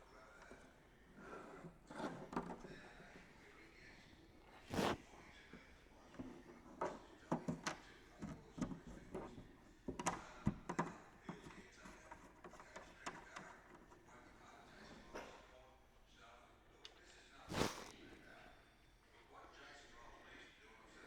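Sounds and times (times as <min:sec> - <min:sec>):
engine cowl knocks and scrapes: 0:04.7 - 0:05.0, 0:17.5 - 0:18.0.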